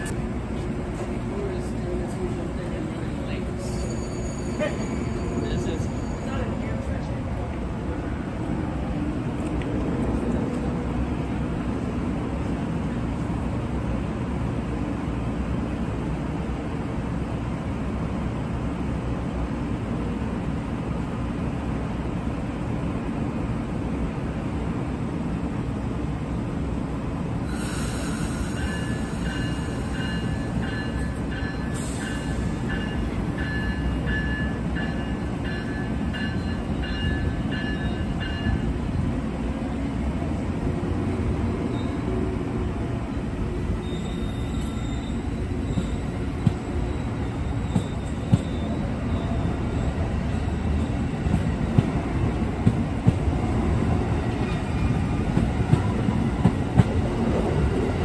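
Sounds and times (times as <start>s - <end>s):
train wheels rumbling on rail: 0.0s - 58.0s
high-pitched wheel squeal: 43.8s - 46.2s.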